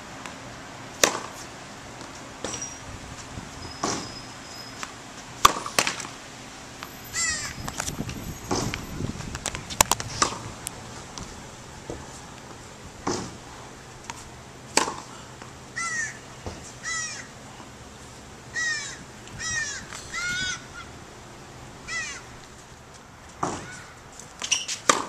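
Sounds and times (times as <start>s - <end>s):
bird calling: 7.1s - 7.6s, 15.8s - 17.4s, 18.5s - 21.0s, 21.8s - 22.4s
tennis ball knocks: 14.7s - 15.1s.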